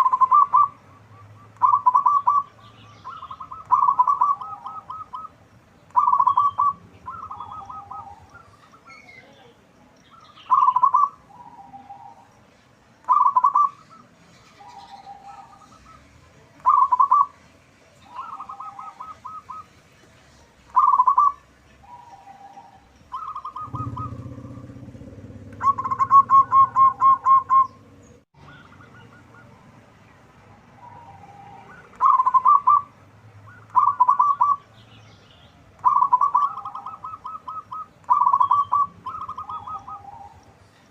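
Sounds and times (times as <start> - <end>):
dove cooing: 0.0 - 9.0, 10.5 - 12.3, 13.0 - 17.4, 18.0 - 19.7, 20.7 - 29.6, 30.8 - 32.9, 33.5 - 34.7, 35.8 - 40.6
low steady hum: 21.7 - 31.6.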